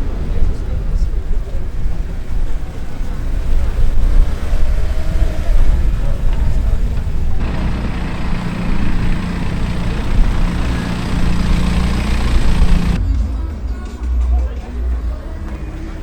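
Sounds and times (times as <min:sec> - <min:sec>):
car engine running: 0:06.4 - 0:13.0.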